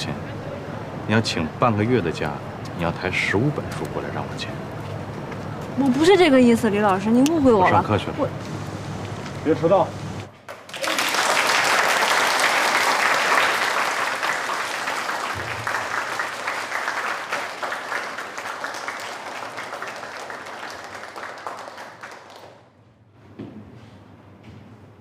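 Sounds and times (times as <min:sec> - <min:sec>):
crowd applauding: 0:10.5 - 0:22.7.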